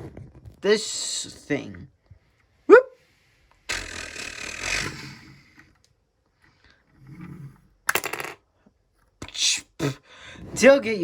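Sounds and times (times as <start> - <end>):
plastic toy pieces clattering: 7.9 - 8.4.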